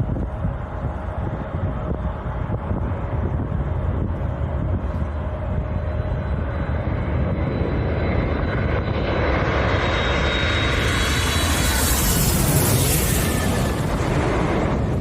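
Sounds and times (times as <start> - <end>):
airliner engine noise: 0.0 - 15.0
wind rumbling on microphone: 0.0 - 15.0
thin high whine: 4.9 - 14.3.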